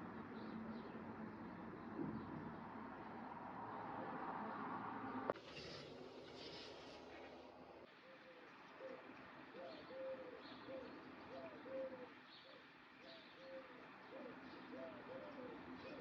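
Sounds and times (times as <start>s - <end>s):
small birds chirping: 0.0s - 3.9s, 7.9s - 16.0s
dove cooing: 8.0s - 16.0s.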